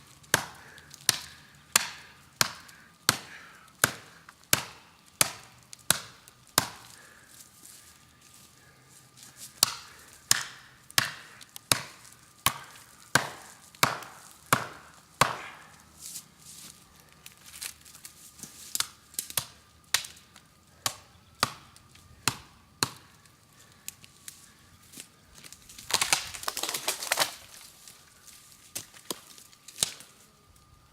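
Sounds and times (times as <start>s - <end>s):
blade chopping into tree: 0.3s - 7.0s, 9.6s - 15.8s, 25.9s - 27.6s.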